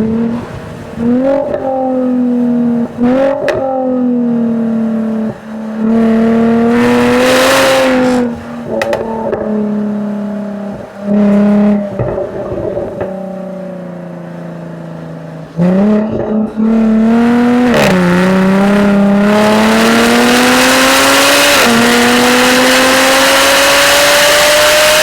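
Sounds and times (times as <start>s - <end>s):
gear upshifts: 0.0s - 13.6s
car exhaust accelerating: 0.0s - 25.0s.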